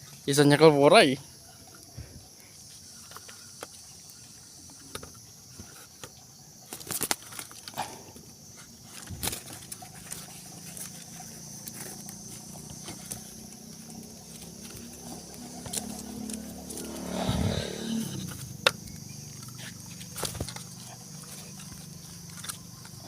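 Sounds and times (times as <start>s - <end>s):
high-pitched insect chirring: 6.2s - 23.0s
low hum: 11.2s - 19.8s.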